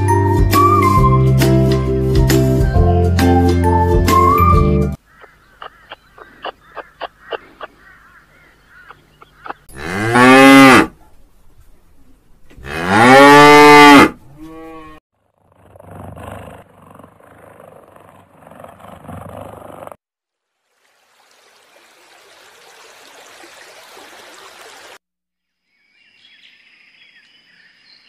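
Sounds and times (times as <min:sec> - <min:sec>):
cows mooing: 0:09.7 - 0:10.9, 0:12.6 - 0:15.0.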